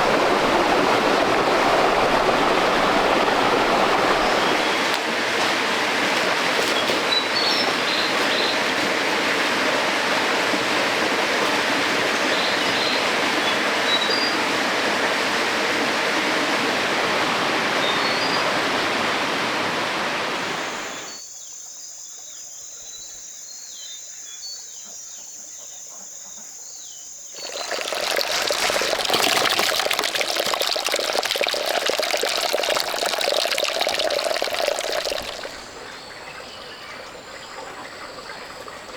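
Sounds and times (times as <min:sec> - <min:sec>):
water rushing over rocks: 0:00.0 - 0:14.2, 0:27.4 - 0:35.8.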